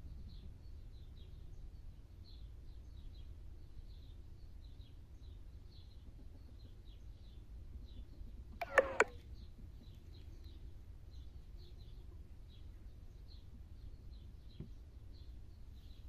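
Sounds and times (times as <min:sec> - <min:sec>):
low steady background rumble: 0:00.0 - 0:16.0
faint high bird chirps: 0:08.6 - 0:10.6.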